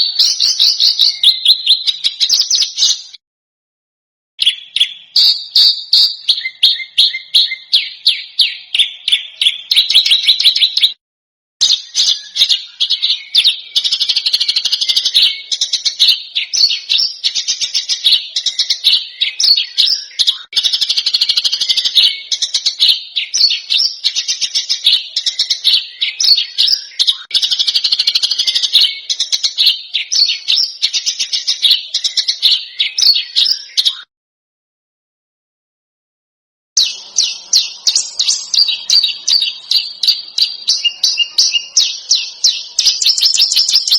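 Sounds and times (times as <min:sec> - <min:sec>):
songbird chattering song: 0:00.0 - 0:03.2, 0:04.4 - 0:11.0, 0:11.6 - 0:34.1, 0:36.8 - 0:43.9.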